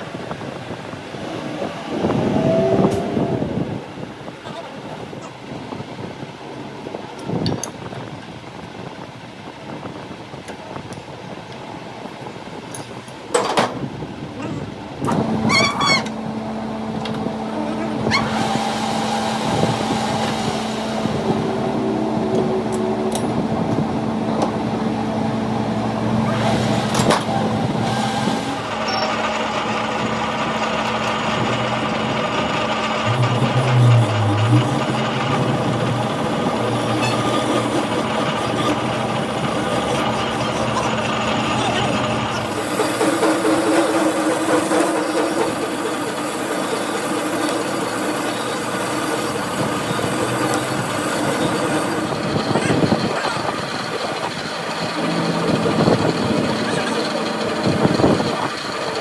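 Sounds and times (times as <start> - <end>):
motor humming: 13.9 - 59.0
machine tool working metal: 15.0 - 59.0.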